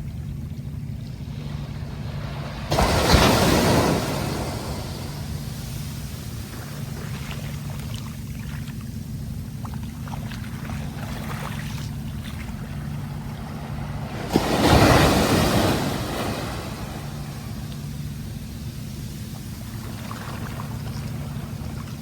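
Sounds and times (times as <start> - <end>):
low rumble of sea: 0.0 - 22.0
wave breaking and washing in: 1.2 - 22.0
water fizzing and crackling: 2.7 - 13.5, 15.7 - 22.0.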